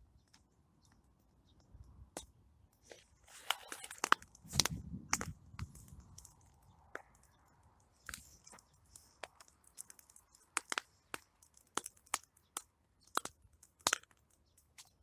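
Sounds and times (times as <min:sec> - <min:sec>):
campfire crackling and popping: 0:03.3 - 0:15.0.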